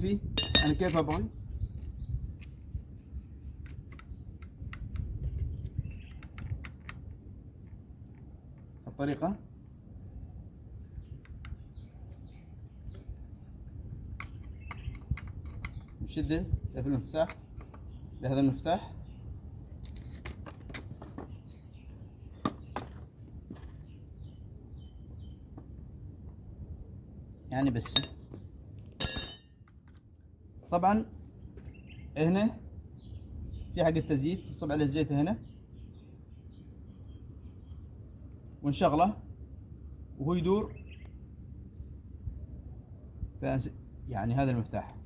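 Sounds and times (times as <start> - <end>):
low steady hum: 0.0 - 1.0, 25.8 - 29.6.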